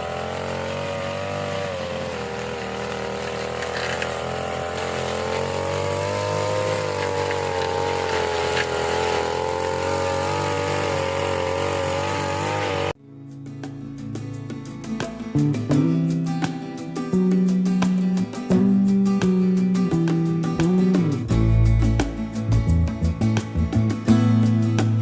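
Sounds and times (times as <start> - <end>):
grass cutter petrol engine running: 0.0 - 13.0.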